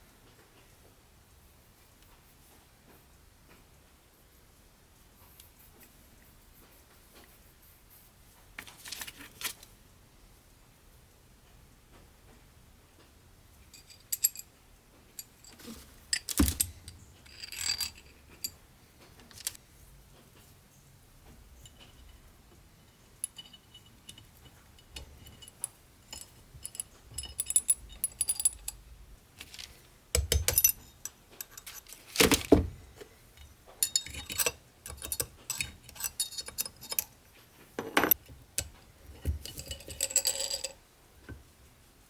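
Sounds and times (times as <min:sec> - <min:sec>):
steel clinking on steel: 0:15.2 - 0:18.6, 0:21.6 - 0:28.8, 0:29.4 - 0:32.6, 0:33.4 - 0:37.2, 0:37.8 - 0:40.8
light metal clicks and taps: 0:21.2 - 0:28.8, 0:29.4 - 0:37.2
metallic ring: 0:22.8 - 0:28.8, 0:33.8 - 0:37.1, 0:38.0 - 0:40.8.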